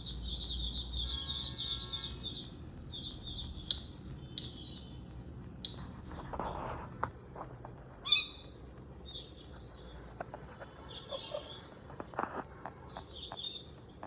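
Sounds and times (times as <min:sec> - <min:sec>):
parakeet calling: 0:00.0 - 0:05.8, 0:08.0 - 0:12.0.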